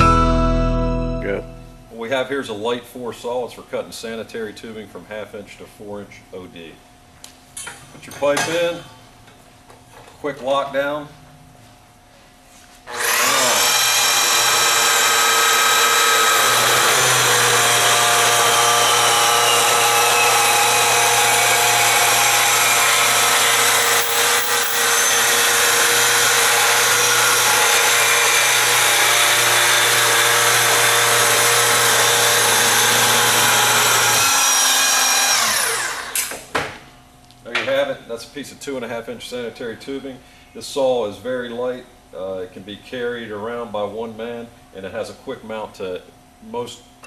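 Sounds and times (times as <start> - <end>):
tube saw cutting metal: 12.9 - 36.0.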